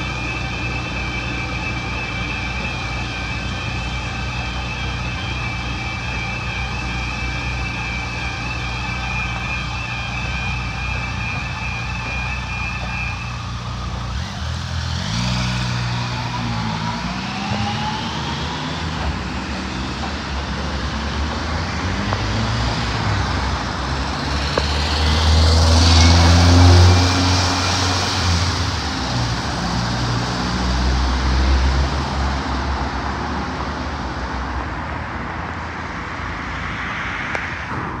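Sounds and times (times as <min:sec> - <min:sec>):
train rumbling on track: 0:00.0 - 0:38.0.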